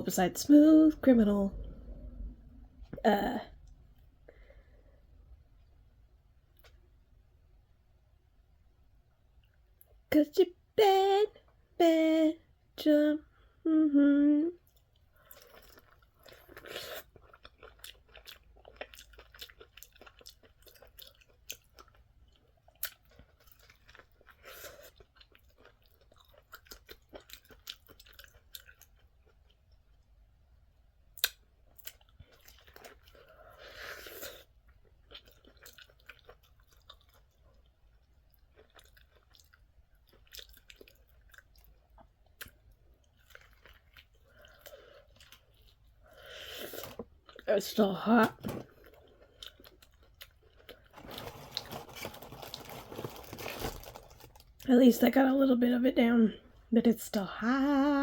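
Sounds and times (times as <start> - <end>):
chewing and crunching food: 14.6 - 54.7.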